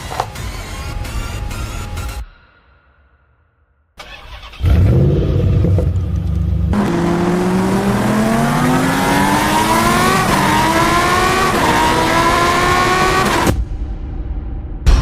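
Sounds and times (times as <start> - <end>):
car engine accelerating hard: 4.5 - 13.5.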